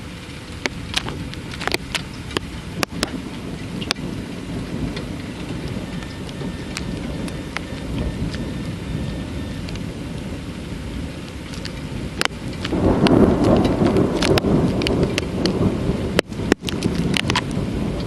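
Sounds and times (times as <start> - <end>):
rain: 0.0 - 18.0
thunder rumbling: 0.0 - 18.0
drops ticking: 0.6 - 9.9.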